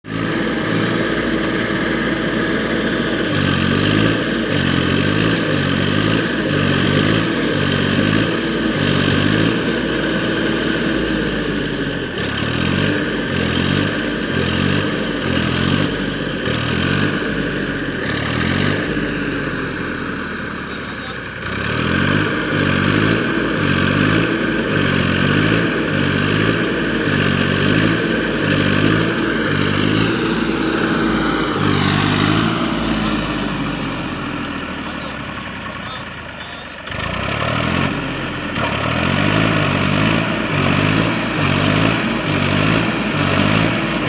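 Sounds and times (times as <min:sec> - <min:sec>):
tractor engine labouring: 0:00.0 - 0:44.0.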